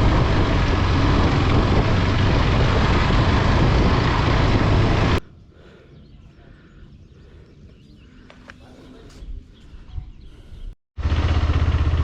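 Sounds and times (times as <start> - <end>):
motorcycle engine drone: 0.0 - 5.2, 11.0 - 12.0
wind rush on microphone: 0.0 - 5.2.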